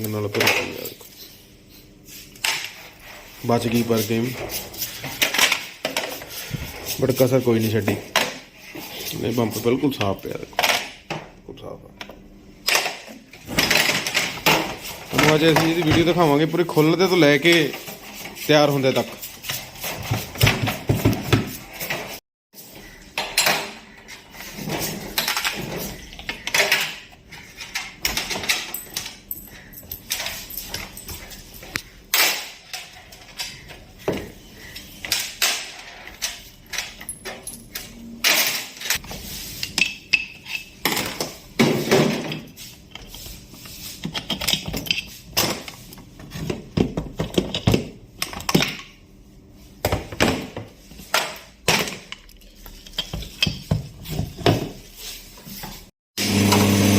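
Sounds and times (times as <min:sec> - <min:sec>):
metal tools clinking and knocking: 0:24.8 - 0:31.8, 0:35.0 - 0:39.0, 0:44.0 - 0:45.2.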